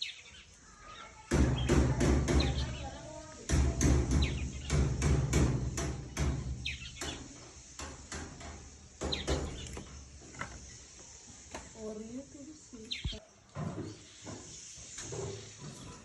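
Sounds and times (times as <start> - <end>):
birds chirping: 0.0 - 16.0
sharp knocks with low thud: 3.5 - 9.8.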